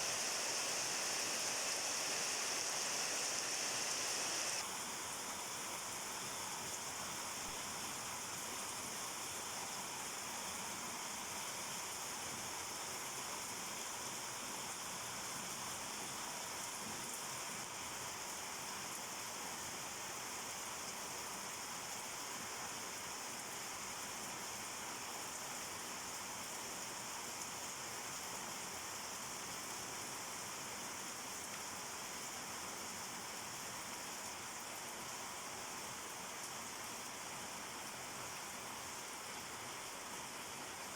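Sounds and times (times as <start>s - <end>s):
steady rain falling: 0.0s - 4.6s.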